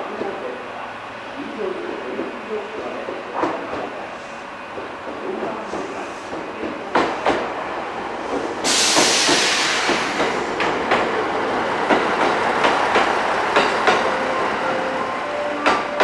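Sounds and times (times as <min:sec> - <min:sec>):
train wheels clicking over rail joints: 0:04.7 - 0:07.6, 0:08.2 - 0:14.1
loud hiss: 0:08.5 - 0:10.6.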